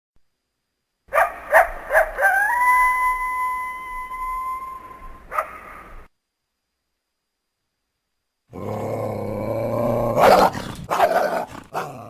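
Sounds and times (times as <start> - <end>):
coyote howling: 1.5 - 5.7.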